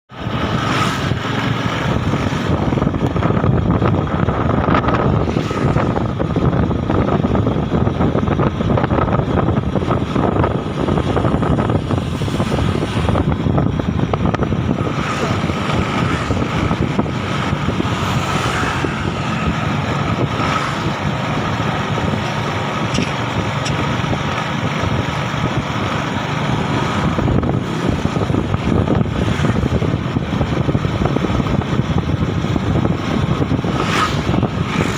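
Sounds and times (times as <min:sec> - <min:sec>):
motorbike engine cruising: 0:00.1 - 0:34.9
wind rushing over microphone: 0:00.1 - 0:34.9.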